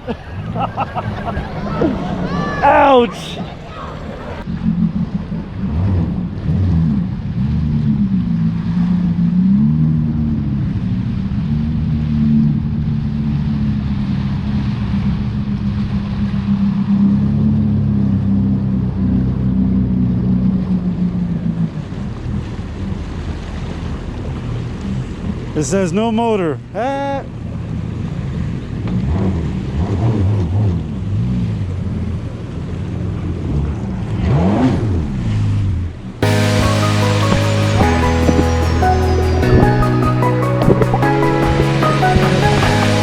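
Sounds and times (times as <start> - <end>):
jet ski engine running: 36.2 - 43.0
wind noise on microphone: 36.2 - 43.0.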